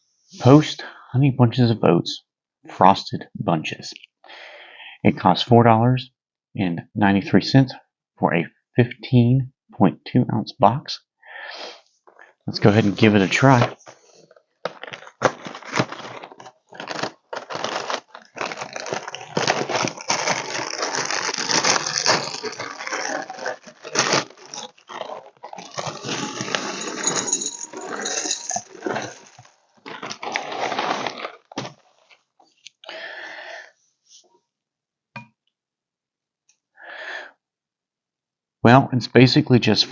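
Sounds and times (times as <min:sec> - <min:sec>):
crunching and chewing cereal: 0:12.2 - 0:33.0.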